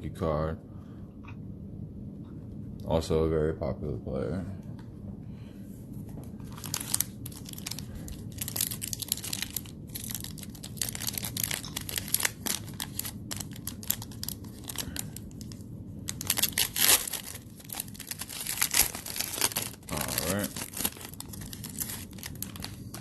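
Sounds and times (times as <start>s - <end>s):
plastic wrapper tearing and crinkling: 6.4s - 23.0s.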